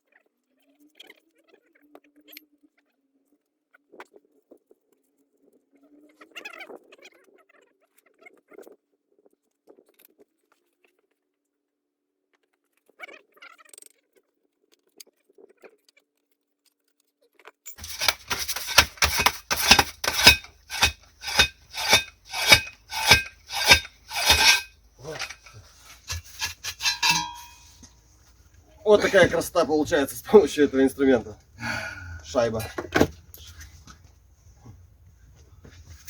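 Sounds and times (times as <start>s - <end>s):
rasping strokes: 17.8s - 28.4s
low steady hum: 18.0s - 35.2s.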